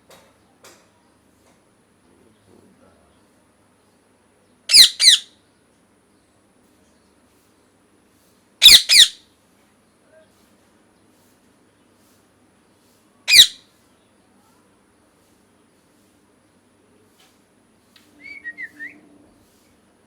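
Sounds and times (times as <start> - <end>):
bird squawking harsh calls: 4.7 - 5.3, 8.6 - 9.2, 13.3 - 13.6.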